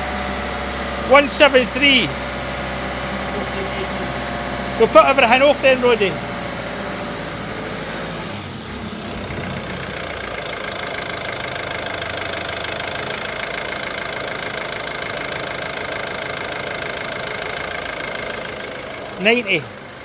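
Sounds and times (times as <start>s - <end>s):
diesel engine idling: 0.0s - 20.0s
steady whine: 8.5s - 11.3s.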